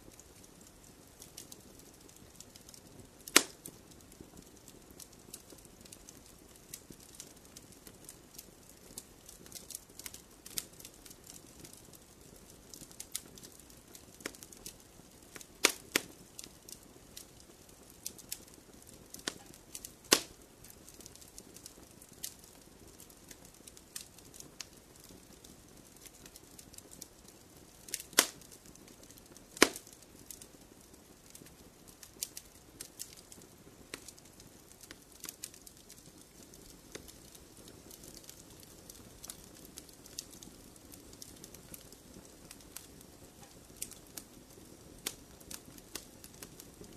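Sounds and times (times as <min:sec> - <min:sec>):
wood fire crackling: 0:00.0 - 0:46.9
loud sharp pops of logs: 0:03.3 - 0:03.6, 0:15.6 - 0:16.1, 0:20.1 - 0:20.4, 0:27.9 - 0:28.5, 0:29.6 - 0:30.0.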